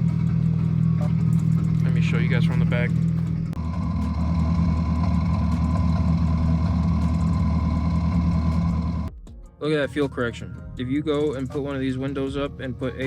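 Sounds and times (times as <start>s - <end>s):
engine idling and misfiring: 0.0s - 9.1s.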